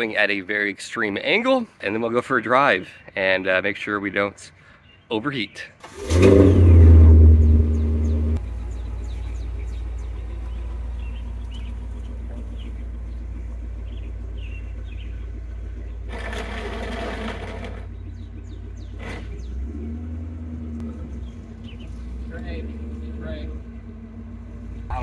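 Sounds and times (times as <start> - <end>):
car engine idling: 5.8 - 25.0.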